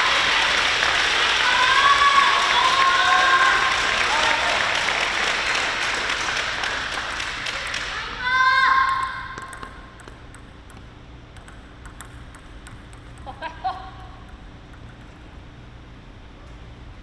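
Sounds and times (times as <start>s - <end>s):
spectators applauding: 0.0s - 8.4s.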